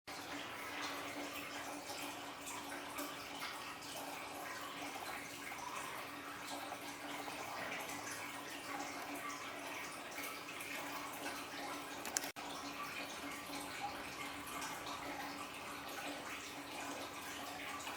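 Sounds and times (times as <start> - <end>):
water trickling and splashing: 0.1 - 17.9.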